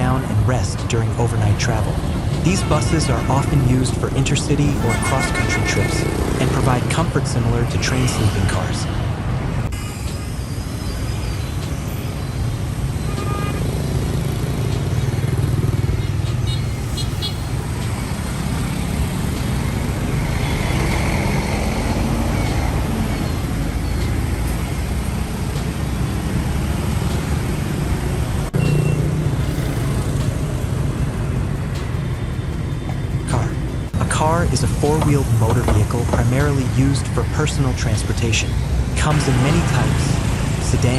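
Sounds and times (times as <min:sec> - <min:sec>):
road noise: 0:00.0 - 0:40.9
horn toots: 0:02.5 - 0:03.9, 0:04.7 - 0:06.8, 0:13.0 - 0:13.8, 0:16.1 - 0:17.6
large vehicle engine running: 0:11.6 - 0:40.9.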